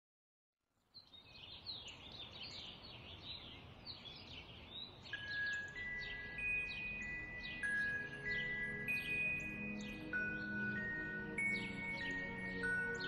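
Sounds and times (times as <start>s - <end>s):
outdoor ambience: 0.6s - 13.0s
small birds chirping: 0.7s - 13.0s
soft bell-like musical tones: 5.0s - 13.0s.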